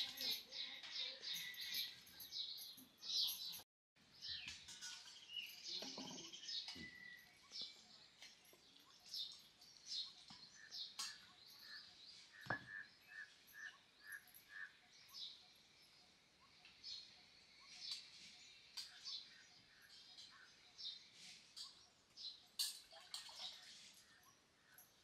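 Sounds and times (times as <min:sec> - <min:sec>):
faint bird chirping: 0:00.0 - 0:25.0
soft knocks of stone and steel: 0:12.4 - 0:12.8.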